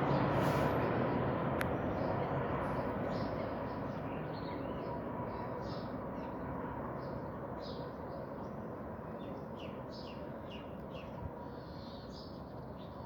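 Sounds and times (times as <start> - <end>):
small birds chirping: 1.6 - 13.0.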